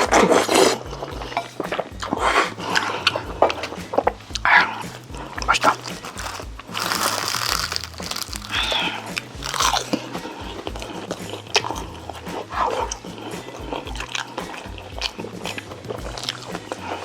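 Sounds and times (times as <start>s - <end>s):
biting and chewing food: 0.1s - 10.1s
wet mouth smacks: 4.9s - 10.0s.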